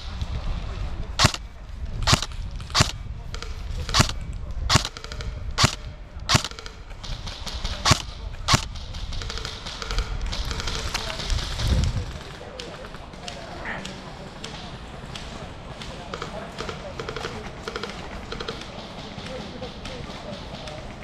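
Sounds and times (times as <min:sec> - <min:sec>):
airsoft gun shots: 0:01.2 - 0:01.4, 0:02.0 - 0:11.2.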